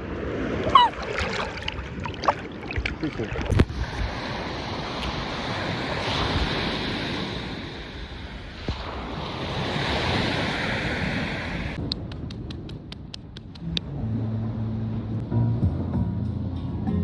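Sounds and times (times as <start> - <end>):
ocean waves washing: 0.0 - 11.8
wind buffeting microphone: 0.0 - 14.0.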